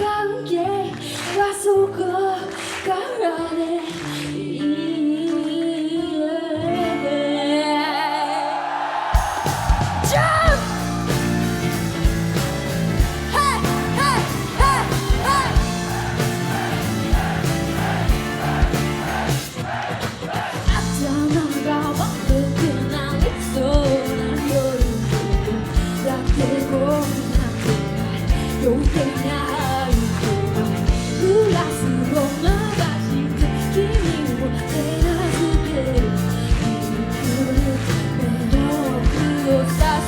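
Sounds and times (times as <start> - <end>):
pop-rock band playing: 9.2 - 40.0.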